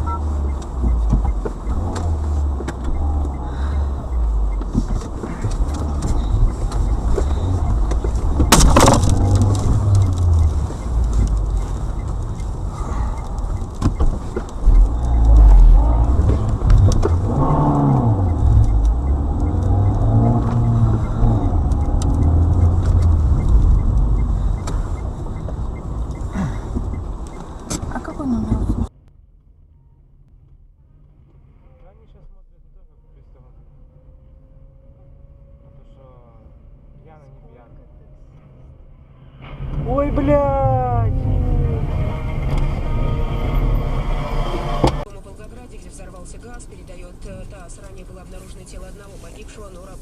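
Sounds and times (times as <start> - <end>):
clicks: 0.0 - 28.9
car road and engine rumble: 0.0 - 50.0.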